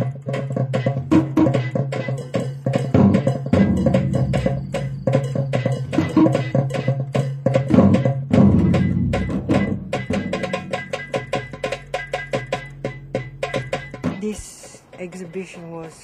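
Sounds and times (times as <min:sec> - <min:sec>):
drum and wood-block strikes: 0:00.0 - 0:16.0
steady low tone: 0:03.5 - 0:06.6.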